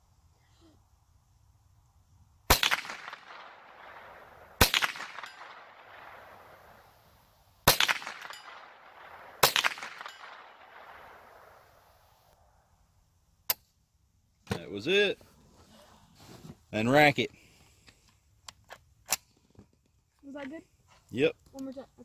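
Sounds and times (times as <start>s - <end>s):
rifle shots with echo: 2.5s - 12.0s.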